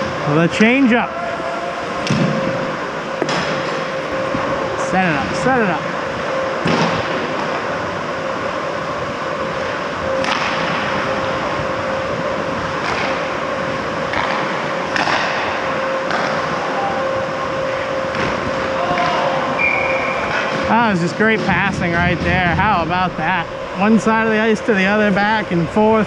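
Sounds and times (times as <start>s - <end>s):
steady rink hum: 0.0s - 26.0s
hockey sticks and puck clacking: 10.2s - 10.8s, 12.8s - 13.3s, 14.1s - 16.6s, 20.3s - 20.7s.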